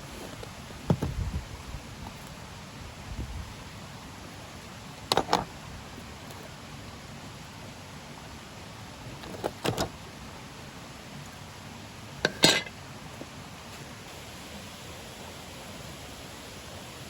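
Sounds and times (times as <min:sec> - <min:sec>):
steady hiss: 0:00.0 - 0:17.0
camp cookware clinking: 0:12.2 - 0:12.8.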